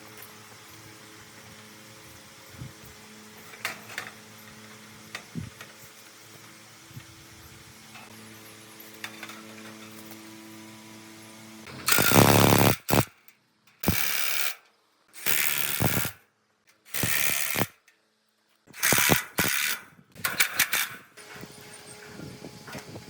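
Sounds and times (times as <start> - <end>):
workshop tool bursts: 11.7 - 13.2, 13.8 - 14.6, 15.2 - 16.2, 16.8 - 17.9, 18.7 - 21.3.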